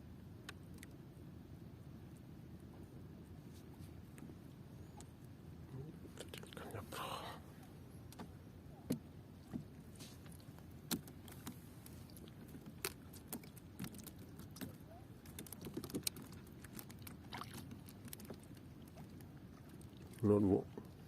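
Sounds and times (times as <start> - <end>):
sharp clicks and light knocks: 10.8 - 17.0.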